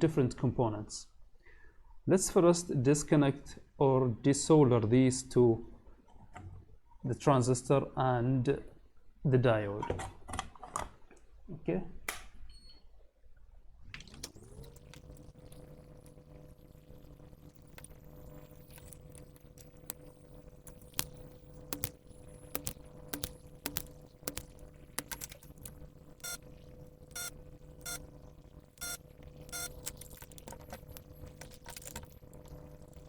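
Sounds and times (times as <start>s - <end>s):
small electric motor humming: 14.0s - 33.0s
short rattling clicks: 17.0s - 26.4s.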